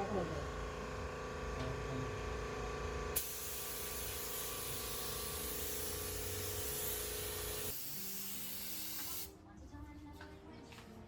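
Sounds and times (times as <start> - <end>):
paint spray gun hissing: 3.2 - 9.3.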